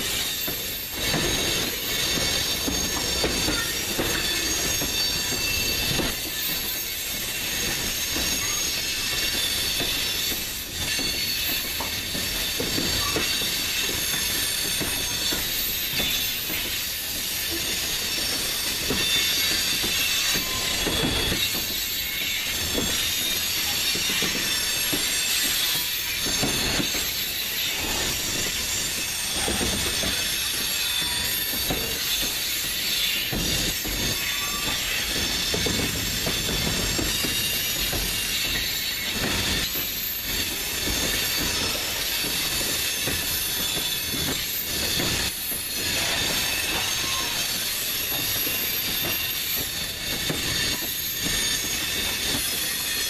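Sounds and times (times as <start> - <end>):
train wheel squeal and hiss: 0.0 - 53.0.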